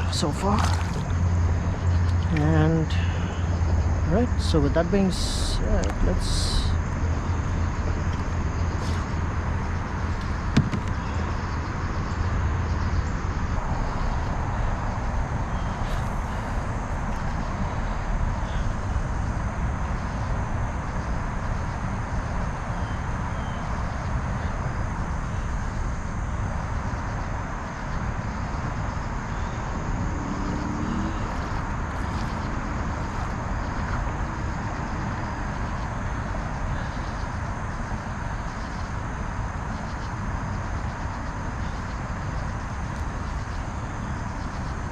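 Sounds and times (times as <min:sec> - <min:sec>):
river water rushing: 0:00.0 - 0:01.6.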